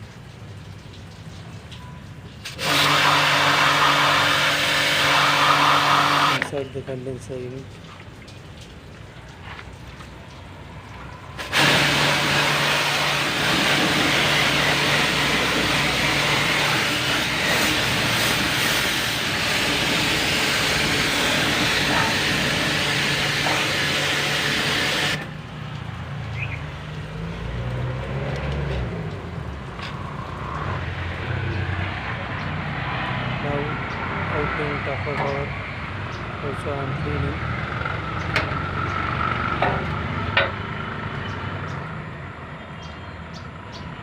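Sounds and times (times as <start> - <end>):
pressure washer jet hissing: 2.4 - 6.7, 11.3 - 25.4.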